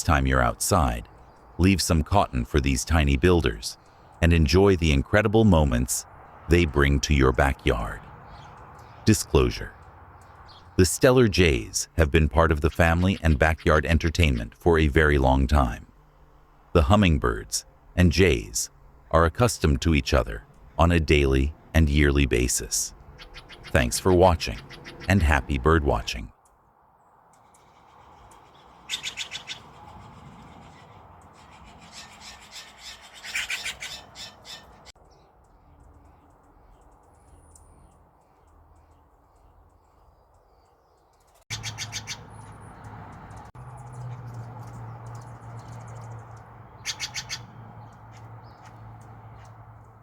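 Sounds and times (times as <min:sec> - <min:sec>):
jays calling harshly: 0:05.7 - 0:26.3, 0:27.4 - 0:34.9, 0:41.5 - 0:43.5, 0:44.8 - 0:49.7.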